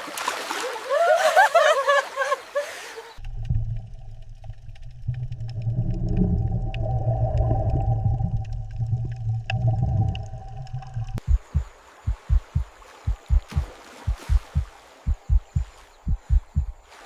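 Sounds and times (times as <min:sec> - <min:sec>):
low rumbling drone: 0:03.2 - 0:11.4
held hum: 0:03.2 - 0:16.8
faint ticks: 0:08.4 - 0:16.8.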